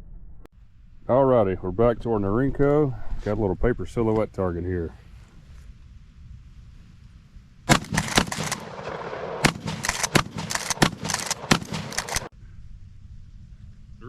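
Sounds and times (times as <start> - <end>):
shotgun shots: 7.7 - 12.3.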